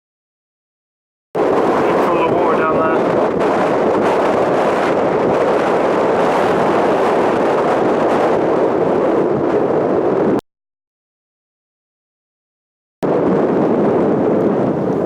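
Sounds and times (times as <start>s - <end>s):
wind buffeting microphone: 1.4s - 10.4s, 13.0s - 15.0s.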